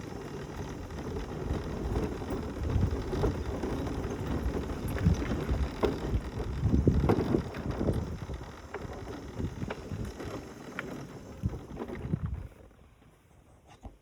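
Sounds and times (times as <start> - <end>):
mobility scooter tyres rumbling: 0.0 - 13.2
knocks and rattles over bumps: 0.3 - 12.6
wind buffeting microphone: 0.6 - 10.4, 11.4 - 12.6.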